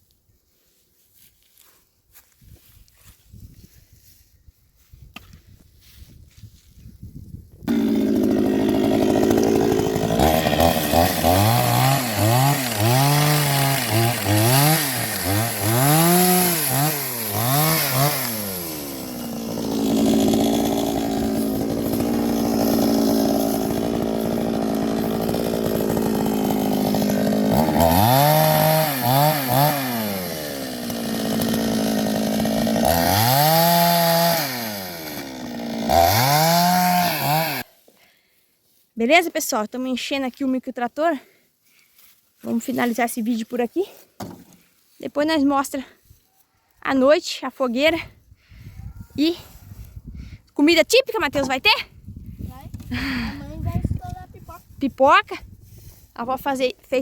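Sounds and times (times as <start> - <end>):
chainsaw revving and cutting: 7.7 - 37.8, 52.9 - 53.4.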